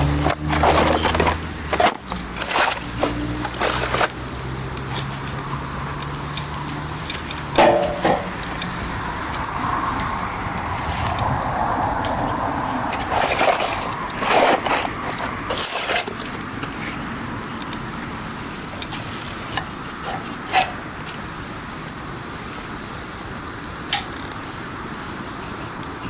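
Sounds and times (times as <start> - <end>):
rustling: 0.0 - 5.6, 12.7 - 17.0
campfire crackling: 0.0 - 26.0.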